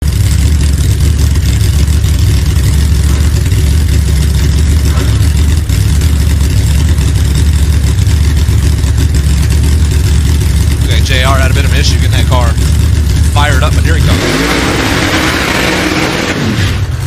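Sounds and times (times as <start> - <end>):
engine idling with low rumble: 0.0 - 17.0.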